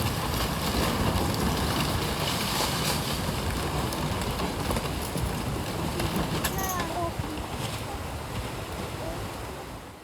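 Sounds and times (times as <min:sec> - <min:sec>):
flooded river rushing: 0:00.0 - 0:10.0.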